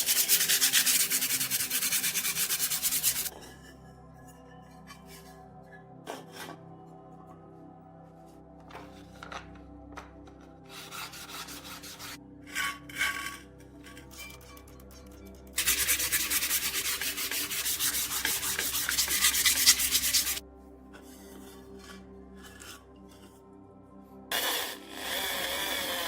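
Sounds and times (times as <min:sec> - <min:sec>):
abrasive sanding strokes: 0:00.0 - 0:03.3, 0:10.9 - 0:12.2, 0:15.6 - 0:20.4
quiet background music: 0:00.0 - 0:26.0.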